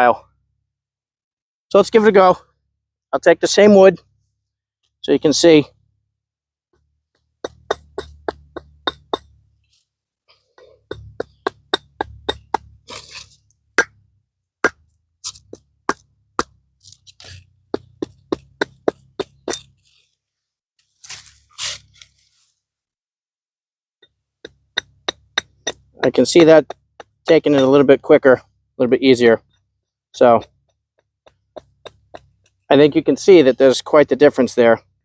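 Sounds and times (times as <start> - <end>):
axe chopping wood: 7.4 - 9.3, 10.6 - 13.9, 14.6 - 19.8, 24.4 - 28.3, 31.2 - 32.6
short scraping sound: 12.8 - 13.4, 21.0 - 22.5.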